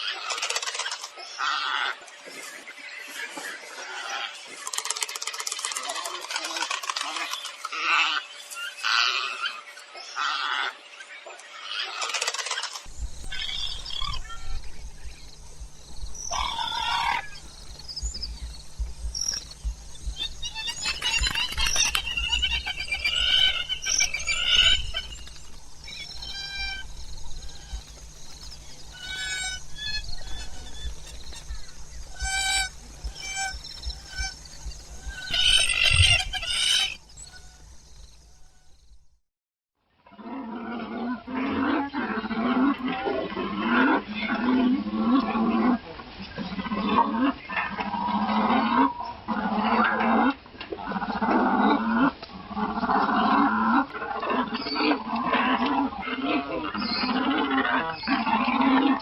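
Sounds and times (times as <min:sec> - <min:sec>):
low rumble: 0:12.9 - 0:36.4
stork honking calls: 0:16.2 - 0:37.6.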